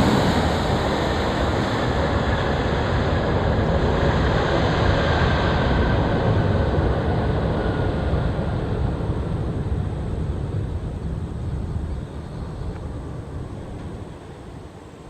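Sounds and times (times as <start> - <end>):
faint jet engine whine: 0.0 - 15.0
jet engines rushing: 0.0 - 15.0.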